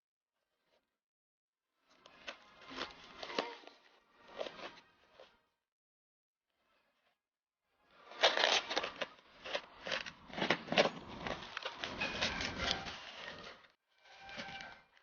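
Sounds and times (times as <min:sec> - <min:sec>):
packaging crinkling and rustling: 0:08.2 - 0:13.5.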